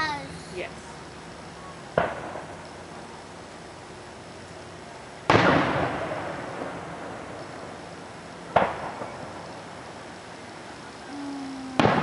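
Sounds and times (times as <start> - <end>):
firework shells bursting: 11.8 - 12.0.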